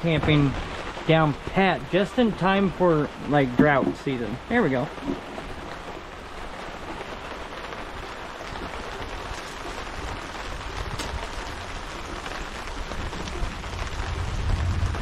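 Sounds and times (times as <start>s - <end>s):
rain falling on a tarp: 0.0s - 15.0s.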